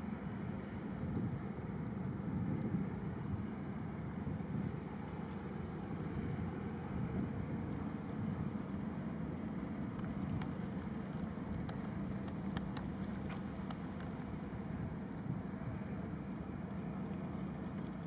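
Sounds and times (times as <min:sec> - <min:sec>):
boat engine droning: 0:00.0 - 0:18.0
water noise: 0:00.0 - 0:18.0
wind: 0:00.0 - 0:18.0.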